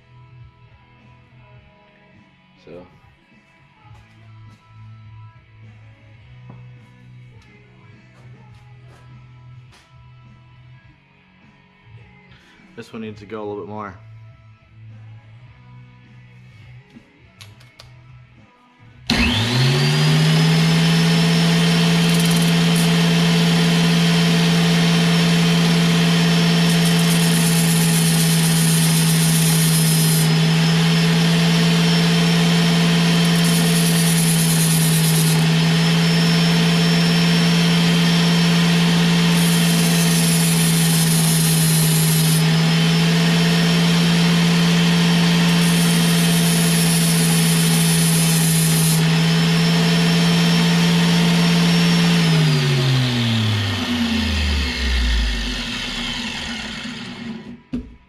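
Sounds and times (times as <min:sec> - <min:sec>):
rotary tool spinning: 0:22.0 - 0:23.0, 0:26.3 - 0:30.8, 0:33.0 - 0:35.6, 0:53.2 - 0:57.5.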